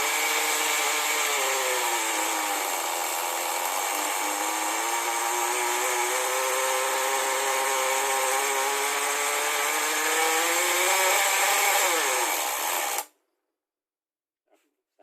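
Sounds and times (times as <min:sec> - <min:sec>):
model car engine running: 0:00.8 - 0:12.3.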